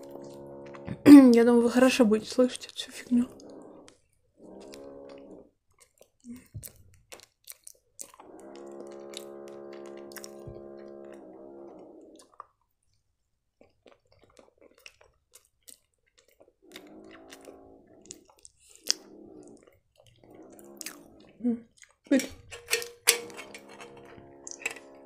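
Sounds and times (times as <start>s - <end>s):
chewing flaky pastry: 2.6s - 25.0s
wet mouth clicks: 5.8s - 9.3s, 10.0s - 10.6s, 12.1s - 12.6s, 13.6s - 22.9s.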